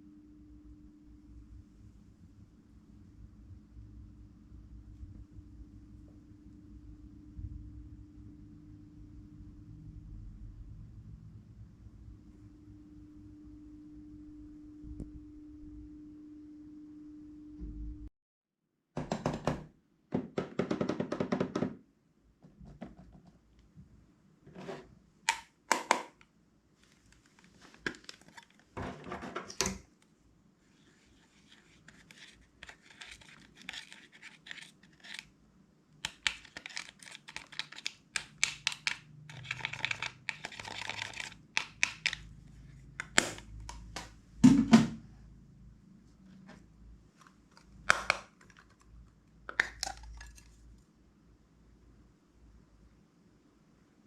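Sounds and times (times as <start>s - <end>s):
plastic containers clicking and tapping: 25.3s - 26.2s, 36.0s - 42.3s, 43.0s - 44.9s, 47.5s - 48.9s, 49.5s - 50.5s
scratching and rustling: 30.7s - 35.3s.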